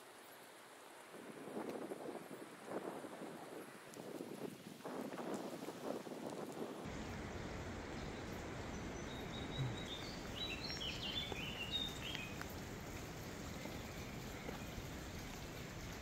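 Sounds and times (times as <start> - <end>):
outdoor background noise: 0.0 - 16.0
songbird chirping and whistling: 9.0 - 12.4.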